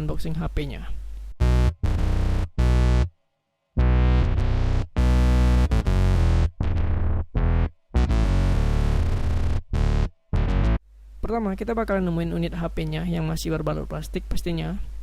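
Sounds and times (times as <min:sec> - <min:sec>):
electronic music with heavy bass: 0:01.4 - 0:03.1, 0:03.8 - 0:10.8.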